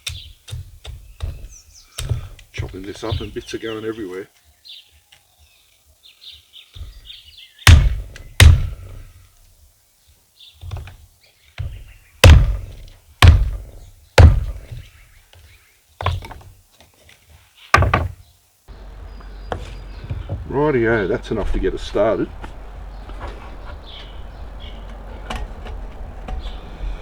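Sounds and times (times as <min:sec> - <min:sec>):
axe chopping firewood on stump: 0:07.7 - 0:09.1, 0:11.6 - 0:14.9, 0:17.8 - 0:20.5.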